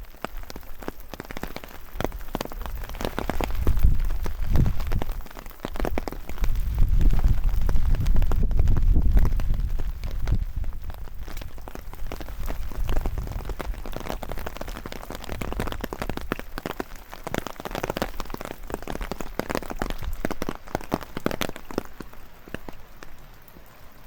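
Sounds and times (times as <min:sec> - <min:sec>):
rain drops ticking: 0:00.0 - 0:24.0
wind rumble on microphone: 0:02.0 - 0:17.0.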